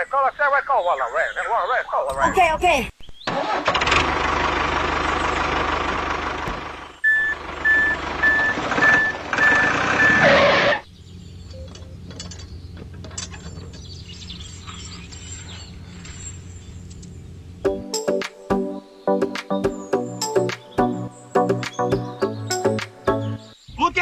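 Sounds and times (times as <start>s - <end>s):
vehicle engine: 3.3s - 17.8s
reversing alarm beeping: 7.0s - 10.8s, 11.5s - 12.0s.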